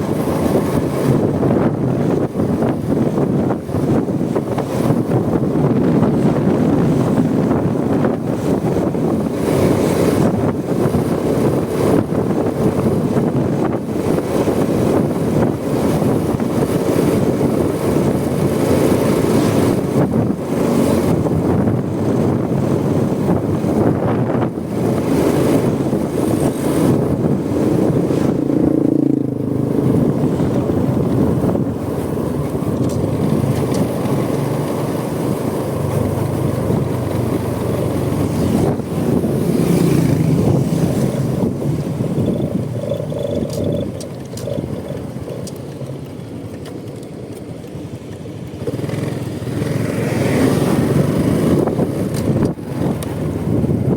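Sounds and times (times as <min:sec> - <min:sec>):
motorcycle engine running: 0:00.0 - 0:53.9
wind buffeting microphone: 0:00.0 - 0:53.9.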